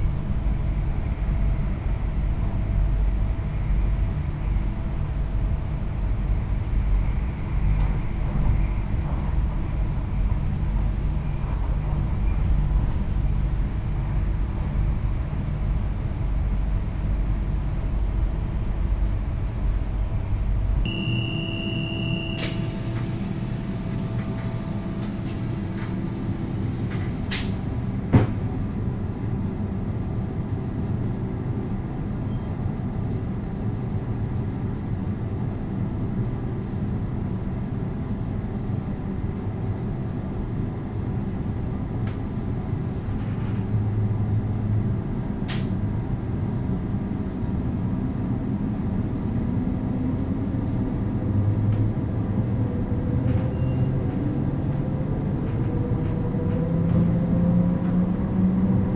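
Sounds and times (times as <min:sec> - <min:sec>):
factory machinery rumble: 0:00.0 - 0:31.9.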